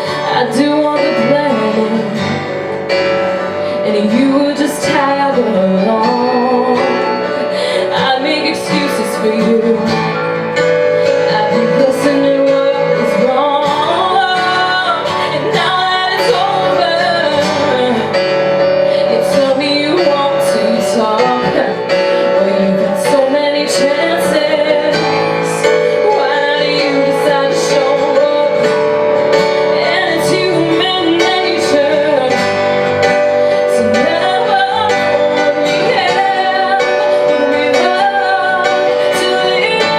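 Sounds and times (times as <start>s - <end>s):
instrumental accompaniment: 0.0s - 39.9s
woman singing: 0.0s - 39.9s.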